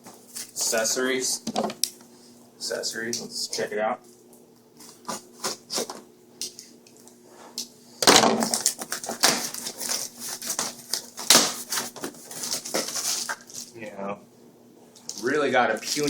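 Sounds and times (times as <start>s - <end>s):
packaging crinkling and rustling: 8.3s - 13.8s, 15.1s - 16.0s.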